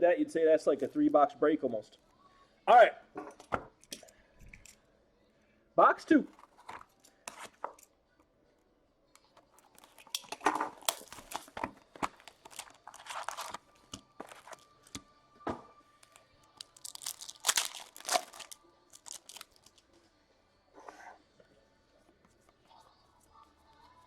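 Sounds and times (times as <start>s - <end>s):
plastic wrapping tearing and crinkling: 9.6s - 15.0s, 16.0s - 19.8s.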